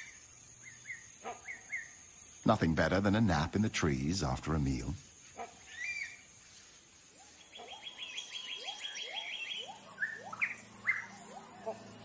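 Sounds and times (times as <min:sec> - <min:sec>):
birds whistling and trilling: 0:00.0 - 0:02.2, 0:05.4 - 0:06.4, 0:07.1 - 0:12.0.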